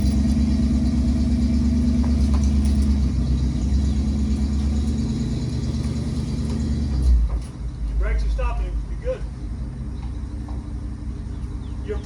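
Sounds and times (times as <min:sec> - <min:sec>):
vehicle engine running at low revs: 0:00.0 - 0:07.5.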